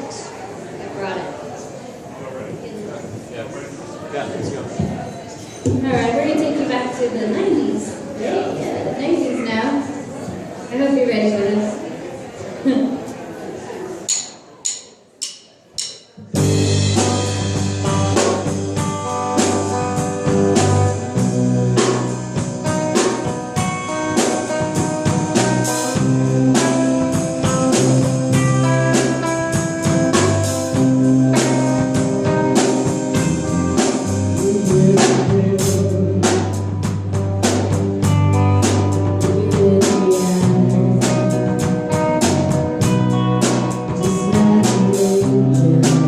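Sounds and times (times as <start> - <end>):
band playing instrumental rock: 15.8 - 46.0.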